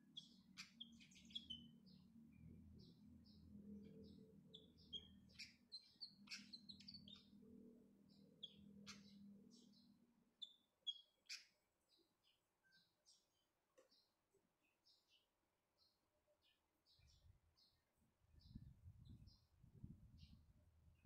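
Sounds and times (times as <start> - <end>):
faint low hum: 0.0 - 10.6
bird chirping: 0.0 - 19.5.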